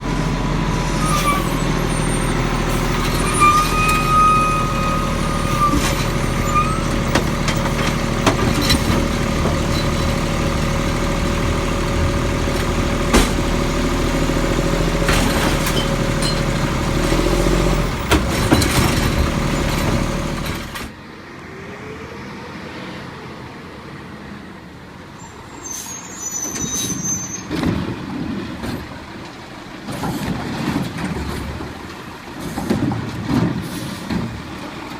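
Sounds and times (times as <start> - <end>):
knocks and clanks: 0.0 - 20.9
garbage truck running: 0.0 - 21.0.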